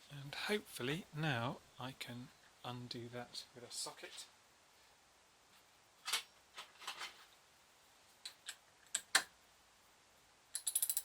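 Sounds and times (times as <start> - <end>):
metallic socket clicks and clinks: 10.5 - 11.0.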